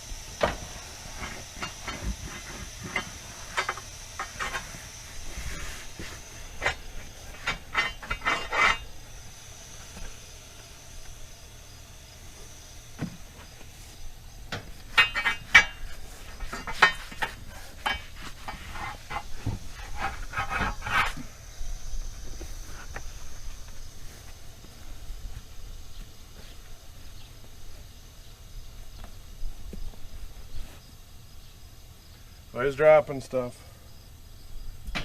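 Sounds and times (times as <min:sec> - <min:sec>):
scraping and knocking on a tire: 0:00.4 - 0:08.9, 0:13.0 - 0:21.4.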